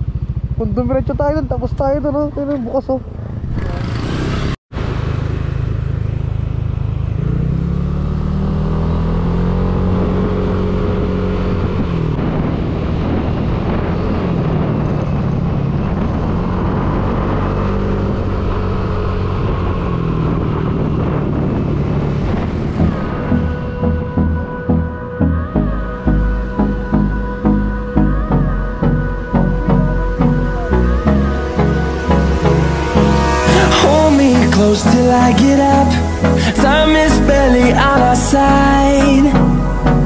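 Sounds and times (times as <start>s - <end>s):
motorcycle engine accelerating: 0.0s - 40.0s
rushing noise: 9.0s - 40.0s.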